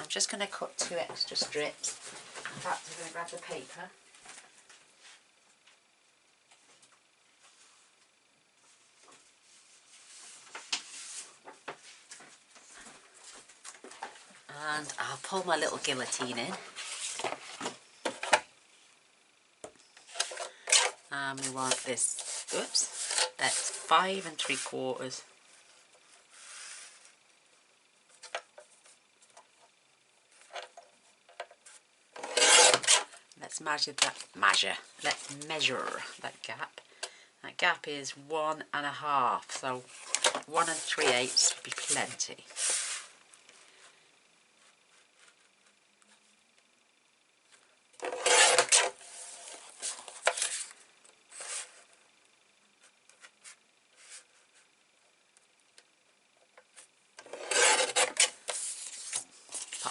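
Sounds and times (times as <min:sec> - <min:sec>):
paper trimmer cutting paper: 0:32.2 - 0:33.1, 0:48.0 - 0:50.7, 0:57.2 - 0:59.9
paper rustling: 0:57.3 - 0:59.9.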